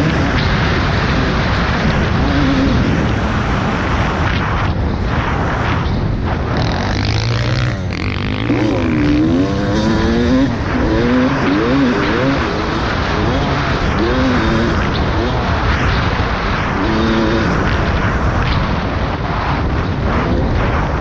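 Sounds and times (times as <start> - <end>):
dirt bike engine revving: 0.0 - 4.3, 6.3 - 18.5
heavy rushing wind noise: 0.0 - 21.0.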